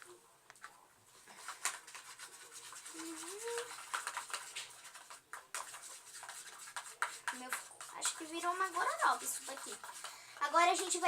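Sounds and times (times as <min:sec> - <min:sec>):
slime stirred and scraped: 0:01.2 - 0:11.0.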